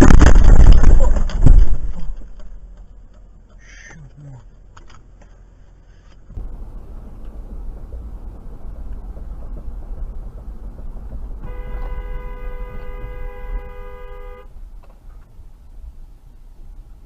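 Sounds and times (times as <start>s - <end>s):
low vehicle rumble: 0.0s - 17.0s
two-tone car horn: 11.4s - 14.6s.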